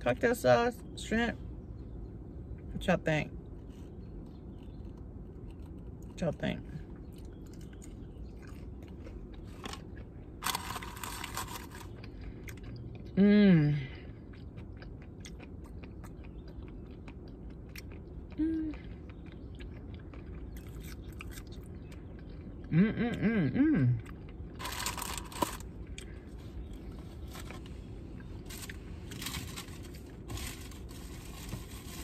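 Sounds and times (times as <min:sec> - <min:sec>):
chewing and crunching fried food: 0:03.3 - 0:32.0
paper packaging rustle: 0:10.4 - 0:11.9, 0:24.6 - 0:25.6, 0:28.4 - 0:32.0
person humming: 0:13.2 - 0:13.9, 0:18.4 - 0:18.8, 0:22.7 - 0:24.0.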